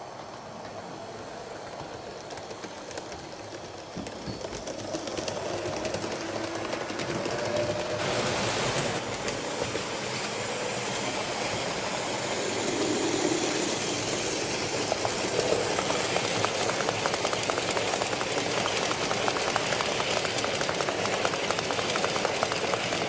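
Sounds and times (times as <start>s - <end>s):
wheels clicking on rails: 0.0s - 23.0s
model train motor whirring: 9.0s - 23.0s.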